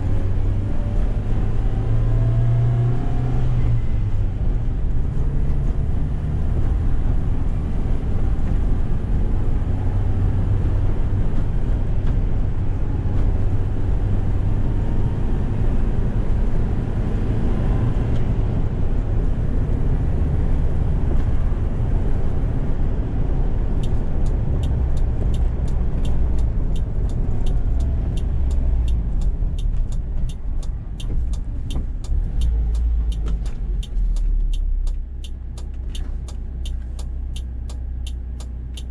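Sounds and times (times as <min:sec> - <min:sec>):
engine and road noise rumble: 0:00.0 - 0:38.9
turn signal relay ticking: 0:23.8 - 0:38.9.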